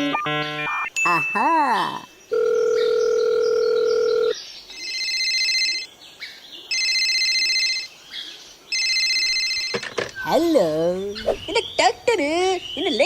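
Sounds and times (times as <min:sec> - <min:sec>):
telephone ringing: 0:02.3 - 0:05.9, 0:06.7 - 0:07.9, 0:08.7 - 0:10.4.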